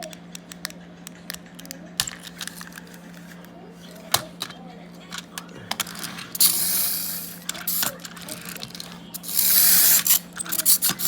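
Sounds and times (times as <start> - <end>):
toy car spring motor whirring: 5.1 - 11.0.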